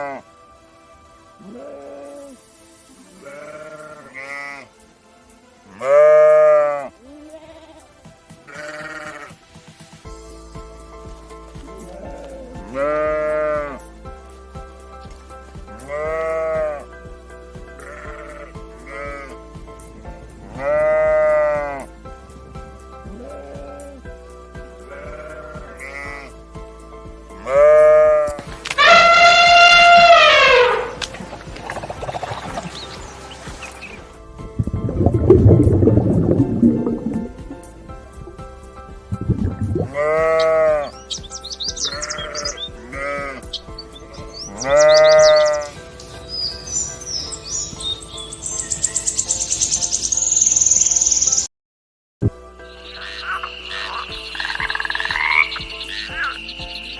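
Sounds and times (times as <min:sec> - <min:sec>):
background music with steady beat: 0:00.0 - 0:51.4, 0:52.2 - 0:56.9
sheep bleating: 0:01.4 - 0:02.4, 0:03.1 - 0:04.7, 0:05.7 - 0:09.4, 0:11.7 - 0:13.8, 0:15.8 - 0:16.9, 0:17.8 - 0:19.4, 0:20.5 - 0:21.9, 0:24.8 - 0:26.4, 0:27.4 - 0:31.1, 0:39.7 - 0:41.0, 0:41.7 - 0:43.5, 0:44.4 - 0:45.8.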